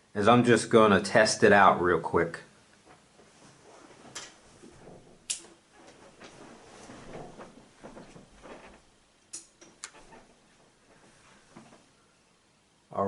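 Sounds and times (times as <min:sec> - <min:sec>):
soft rustling: 0:02.8 - 0:12.1.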